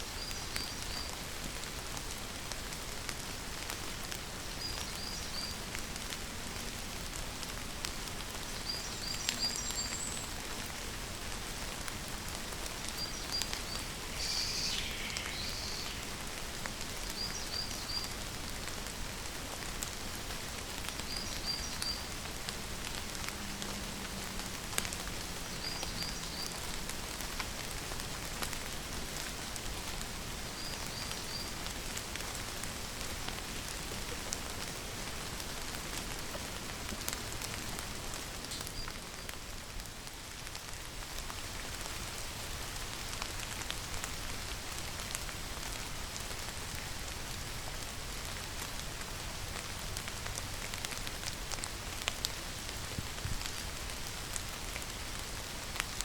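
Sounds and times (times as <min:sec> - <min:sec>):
rain falling: 0:00.0 - 0:56.0
sweeping call: 0:13.4 - 0:16.5.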